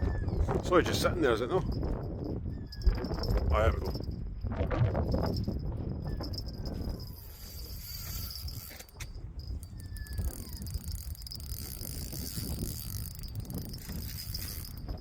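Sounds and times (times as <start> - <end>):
fishing reel ratcheting whirr: 1.6 - 4.2, 4.9 - 15.0.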